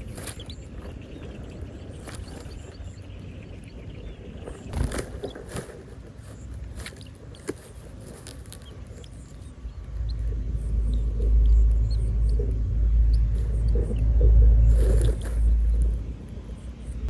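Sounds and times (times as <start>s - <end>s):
rustles: 0.0s - 3.1s, 4.4s - 16.8s
low rumble: 8.4s - 17.0s.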